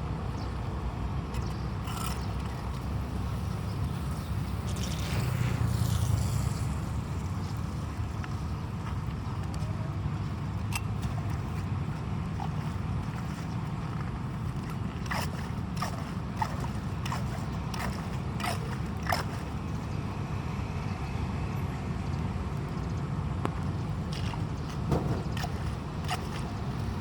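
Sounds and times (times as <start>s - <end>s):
rain and running floodwater: 0.6s - 19.9s, 23.6s - 27.0s
short splashes: 7.2s - 19.8s, 24.0s - 27.0s.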